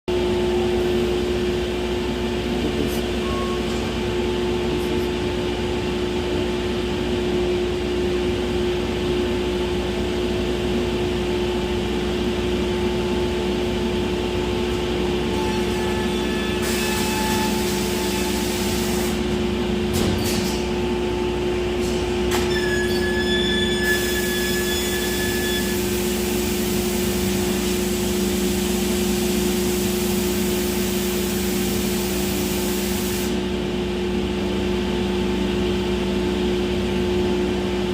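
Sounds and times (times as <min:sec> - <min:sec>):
machine humming: 0:00.1 - 0:34.4
hiss: 0:16.6 - 0:19.2, 0:29.7 - 0:33.4.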